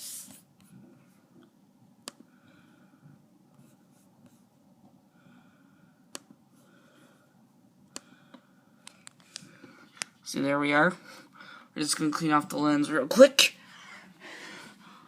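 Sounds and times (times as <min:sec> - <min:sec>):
rubbing and handling on laptop: 0:03.5 - 0:04.6.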